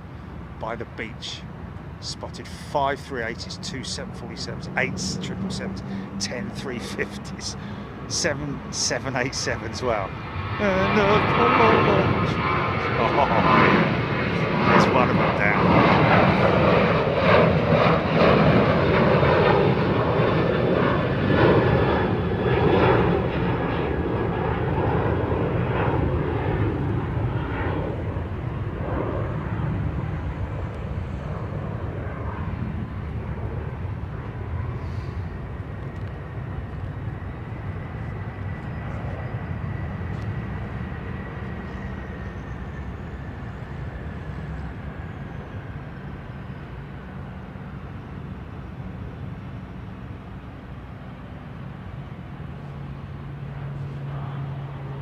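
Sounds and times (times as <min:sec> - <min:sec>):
jet engines rolling: 0:00.0 - 0:55.0
faint high whine: 0:19.2 - 0:55.0.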